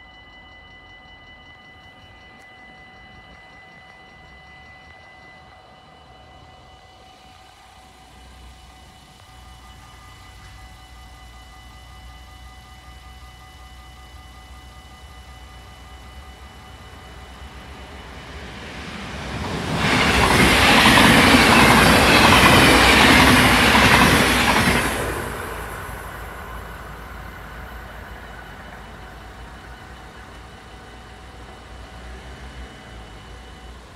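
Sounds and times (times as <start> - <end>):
crossing warning bells ringing: 0.0 - 33.9
train wheels rushing on rails: 0.0 - 33.9.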